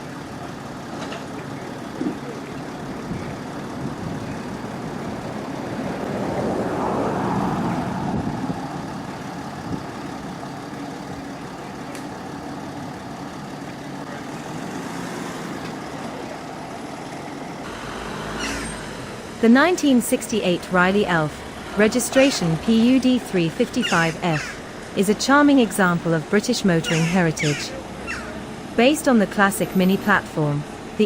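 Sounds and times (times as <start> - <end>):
running engines: 0.0 - 31.0
vehicle driving past: 3.9 - 10.1, 14.0 - 19.4.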